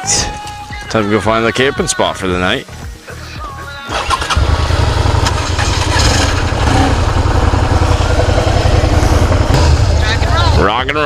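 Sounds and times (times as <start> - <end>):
motorcycle engine idling: 4.1 - 11.0.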